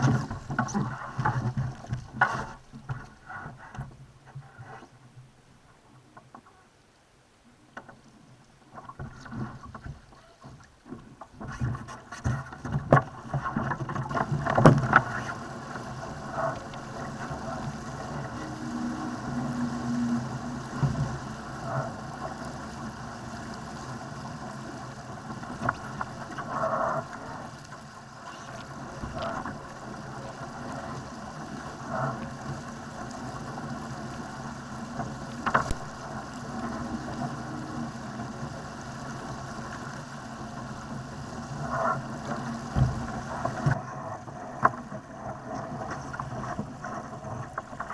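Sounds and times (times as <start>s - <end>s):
knocks and thuds on a boat: 0.0s - 5.3s, 8.6s - 22.5s, 34.8s - 37.6s, 41.6s - 44.0s
water and wind rushing along hull: 0.0s - 47.9s.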